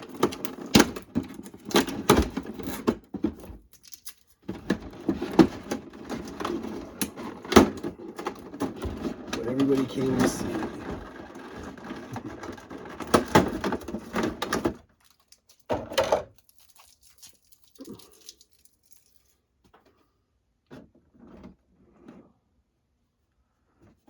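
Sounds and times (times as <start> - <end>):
packaging rustling and crackling: 0.0 - 19.4
faint handling noises: 2.5 - 15.7.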